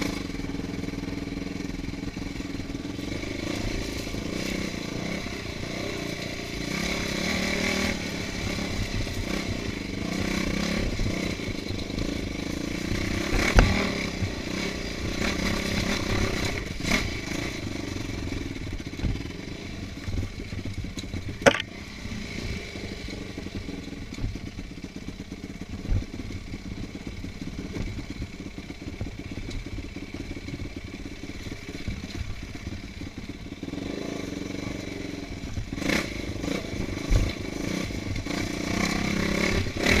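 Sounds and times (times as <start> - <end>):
motorcycle engine running: 0.0 - 40.0
clattering over rough ground: 20.0 - 21.8
sharp knocks: 21.4 - 21.7.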